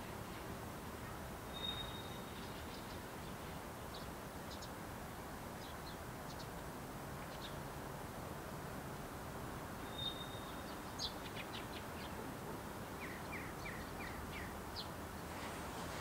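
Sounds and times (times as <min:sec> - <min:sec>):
small birds chirping: 0:00.0 - 0:04.8, 0:05.6 - 0:06.6, 0:07.2 - 0:07.6, 0:09.8 - 0:16.0.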